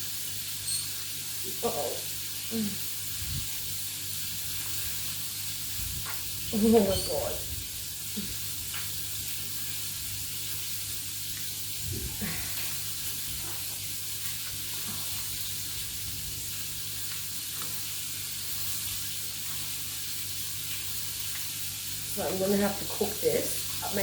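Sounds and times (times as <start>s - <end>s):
food sizzling in a frying pan: 0.0s - 24.0s
steady low hum: 11.6s - 16.9s.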